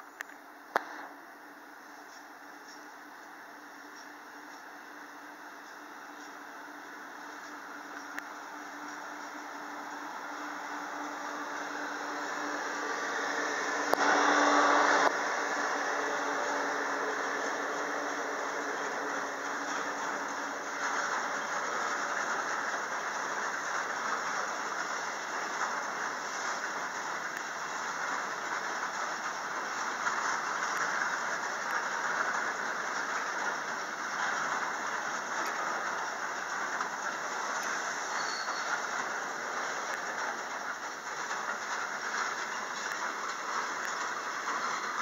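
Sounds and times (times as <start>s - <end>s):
train wheels rushing on rails: 0.0s - 45.0s
high-pitched wheel squeal: 38.0s - 39.0s.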